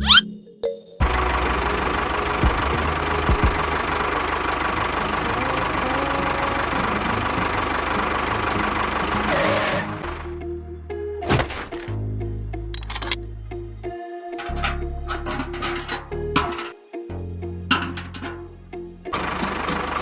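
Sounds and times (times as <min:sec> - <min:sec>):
engine running with fast chatter: 0:01.0 - 0:10.4, 0:19.1 - 0:20.0.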